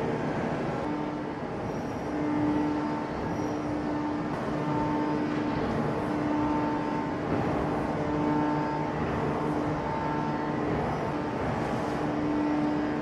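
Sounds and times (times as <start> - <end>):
heavy machinery drone: 0.0 - 13.0.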